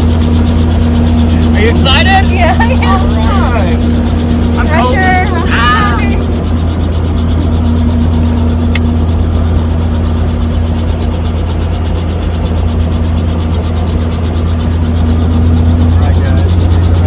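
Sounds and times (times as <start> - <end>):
helicopter engine and rotor drone: 0.0 - 17.0.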